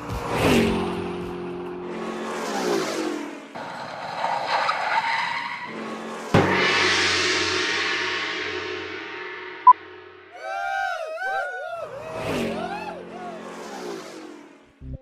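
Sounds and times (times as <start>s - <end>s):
tyres skidding: 0.0s - 6.4s
car engine: 0.1s - 10.2s, 12.2s - 15.0s
car crash: 3.1s - 9.6s.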